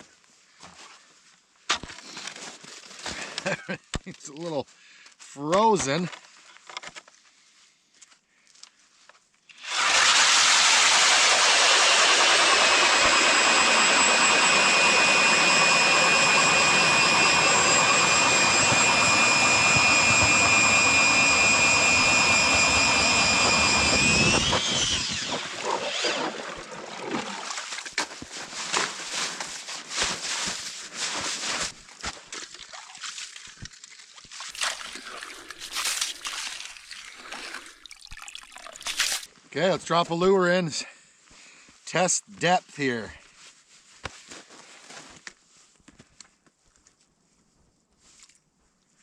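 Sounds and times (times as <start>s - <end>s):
ice auger drilling whine: 9.5s - 29.5s, 34.5s - 39.3s.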